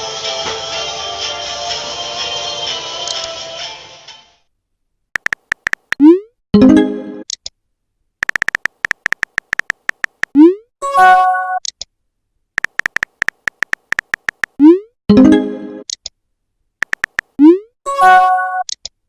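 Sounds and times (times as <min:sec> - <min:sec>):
keyboard tap clicks: 0:05.2 - 0:06.0, 0:08.2 - 0:10.3, 0:12.6 - 0:14.6, 0:16.8 - 0:17.3
synthetic notification chime: 0:17.9 - 0:18.6.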